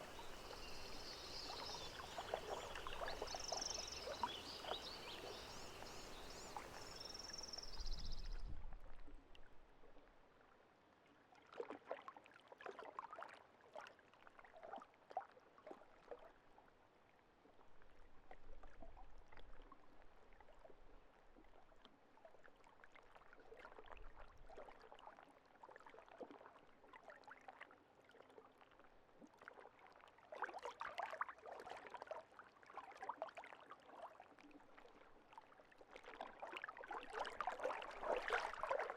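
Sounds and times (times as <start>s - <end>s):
water ripples lapping: 0.0s - 8.4s, 34.8s - 38.9s.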